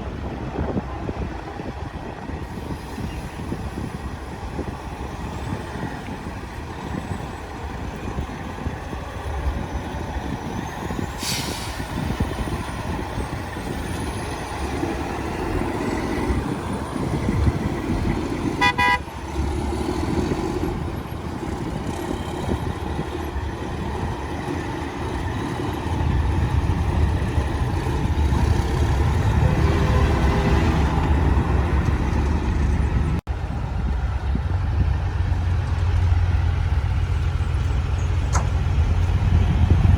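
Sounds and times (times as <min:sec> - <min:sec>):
truck engines running: 0:00.0 - 0:39.9
truck horn toot: 0:18.6 - 0:19.3.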